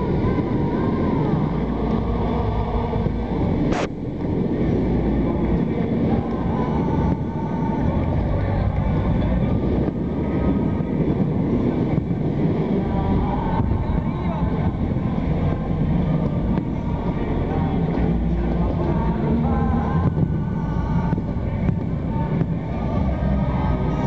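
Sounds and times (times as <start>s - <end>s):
stadium crowd roar: 0.0s - 24.0s
sharp firework crack: 3.1s - 4.2s
crowd chanting: 4.7s - 24.0s.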